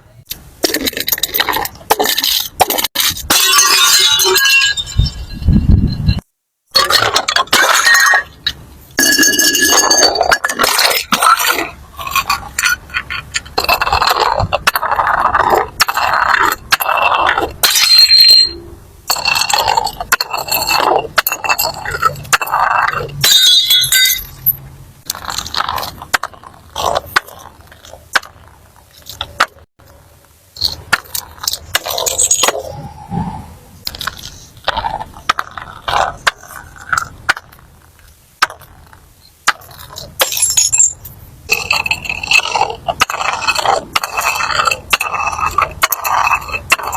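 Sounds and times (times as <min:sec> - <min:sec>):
glass smashing: 0:00.8 - 0:05.4, 0:06.7 - 0:12.8, 0:17.6 - 0:24.6, 0:39.5 - 0:43.3
glass shards jingling: 0:03.3 - 0:06.2, 0:17.6 - 0:24.6, 0:40.2 - 0:42.4.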